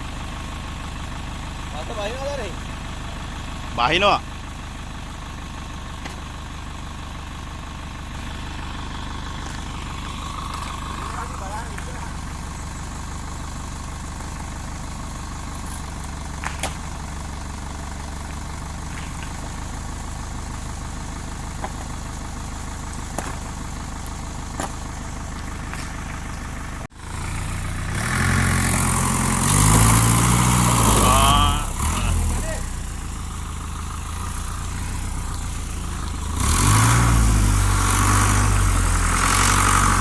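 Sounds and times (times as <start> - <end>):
truck engine idling and revving: 0.0 - 40.0.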